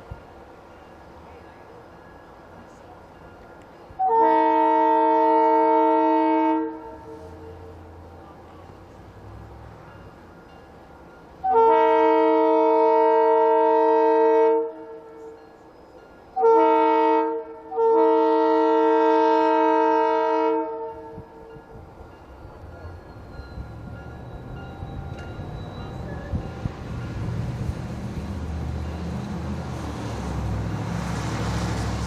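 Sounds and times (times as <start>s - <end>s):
low rumble of train: 0.0s - 32.0s
locomotive air horn chord: 4.0s - 7.9s, 11.4s - 15.3s, 16.4s - 21.4s.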